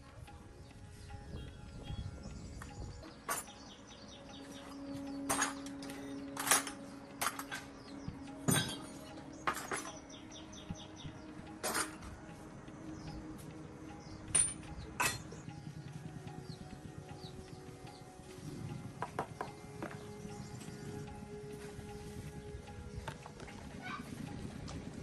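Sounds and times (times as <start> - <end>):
metal tools clinking: 3.2 - 3.5, 5.2 - 10.0, 11.6 - 12.1, 14.4 - 15.4.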